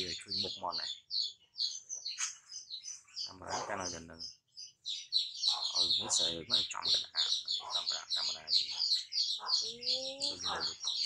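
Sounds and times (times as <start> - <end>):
bird chirping rapidly: 0.0 - 11.0
person talking: 9.6 - 10.8.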